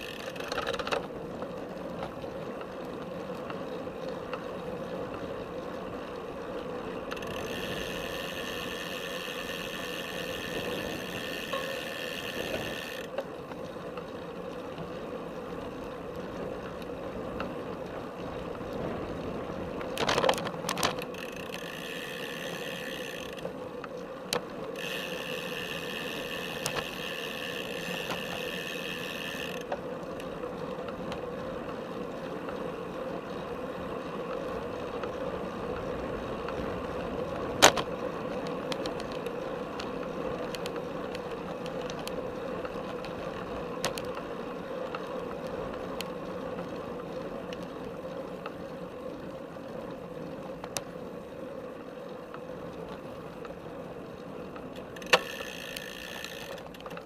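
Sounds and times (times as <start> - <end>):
bike frame rattle: 0.0 - 2.7, 7.0 - 13.2, 19.9 - 23.6, 24.4 - 29.8, 54.8 - 57.0
high steady whirr: 0.0 - 19.0, 19.8 - 57.0
bike tyre and drivetrain noise: 0.0 - 57.0.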